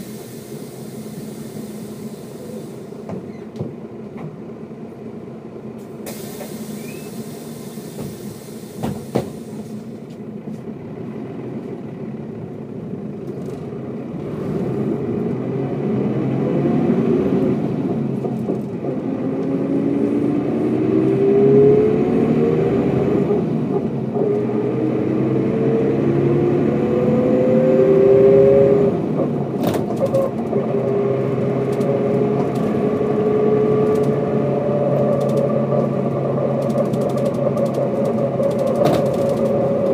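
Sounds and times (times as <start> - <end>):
bus diesel engine accelerating: 0.0 - 39.9
click: 35.1 - 35.5.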